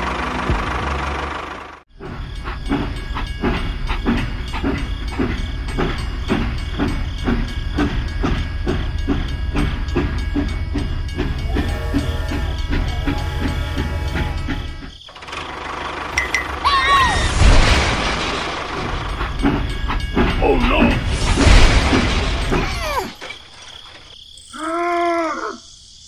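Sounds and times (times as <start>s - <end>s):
toy train wheel clicks: 2.5s - 16.6s
toy train motor hum: 9.0s - 17.1s.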